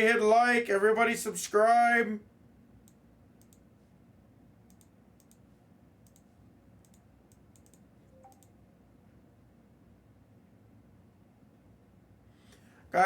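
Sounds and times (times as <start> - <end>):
computer keyboard clicks: 2.9 - 3.6, 4.7 - 5.4, 6.0 - 8.6.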